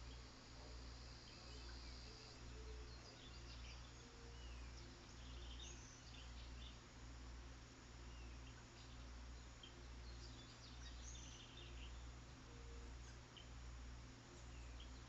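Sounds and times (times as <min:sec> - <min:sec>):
steady low hum: 0:00.0 - 0:15.0
distant bird chirps: 0:08.0 - 0:13.7.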